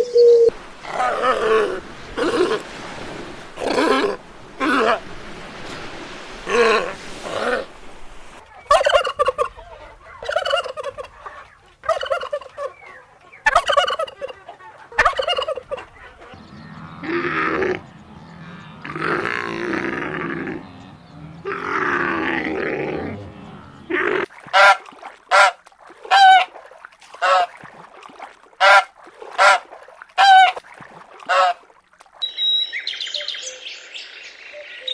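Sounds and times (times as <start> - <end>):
rough animal calls: 0.0 - 26.5.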